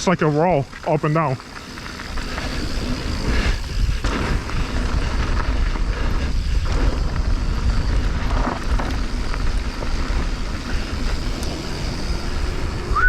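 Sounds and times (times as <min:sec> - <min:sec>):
bike rattling: 0:00.0 - 0:13.0
tyres on dirt and rock: 0:00.0 - 0:13.0
wind rumble on microphone: 0:01.9 - 0:13.0.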